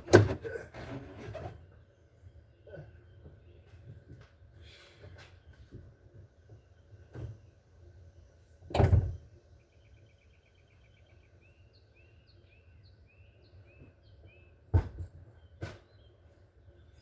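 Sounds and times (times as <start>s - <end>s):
songbird chirping: 1.6s - 17.0s
dull thump: 14.7s - 15.8s.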